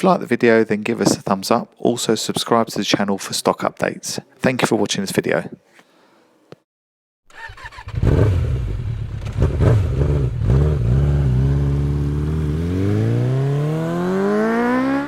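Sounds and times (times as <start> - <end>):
motorcycle engine revving: 7.3 - 15.0.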